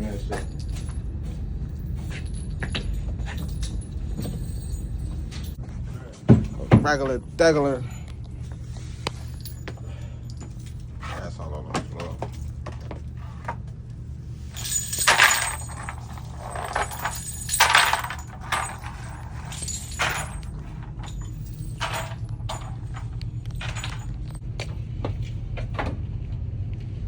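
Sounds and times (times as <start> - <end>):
steady low hum: 0.0 - 27.0
brass casings clinking: 14.5 - 24.4.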